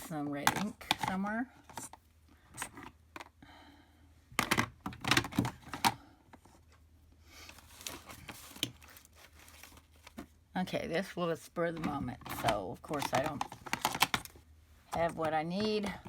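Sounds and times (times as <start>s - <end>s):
soft shuffling and rustling: 7.4s - 10.3s.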